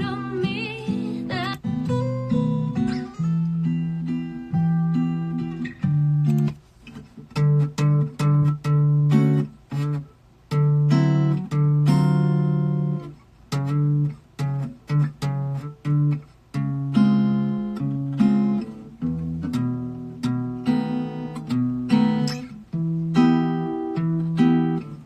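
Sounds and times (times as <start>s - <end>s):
acoustic guitar chords: 0.0s - 25.0s.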